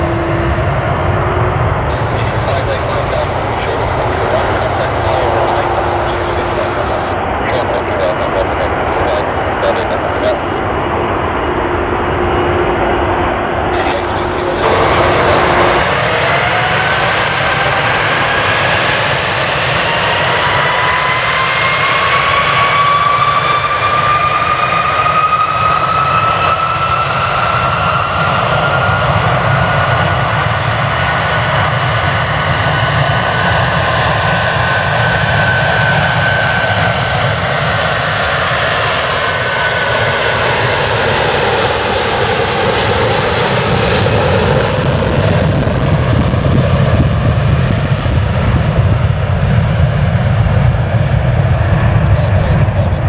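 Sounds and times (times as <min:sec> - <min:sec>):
jet fan whine: 0:00.0 - 0:20.2
jet airliner roaring on takeoff: 0:00.0 - 0:53.0.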